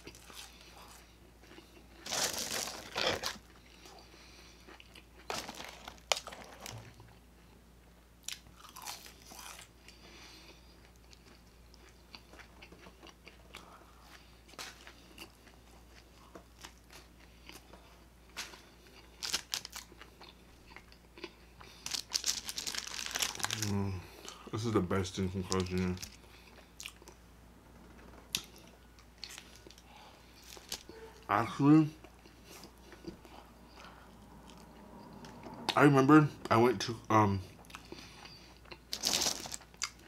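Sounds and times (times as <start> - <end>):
chewing crunchy food: 0.0 - 7.2, 8.2 - 24.5, 25.3 - 27.2, 28.3 - 30.9, 37.6 - 40.0.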